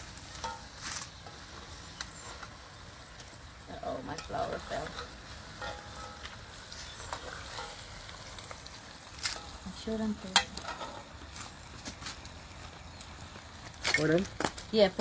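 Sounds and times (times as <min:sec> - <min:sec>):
ribs sizzling in a pot: 0:00.0 - 0:15.0
metal spoon clinking a pot: 0:04.1 - 0:07.9.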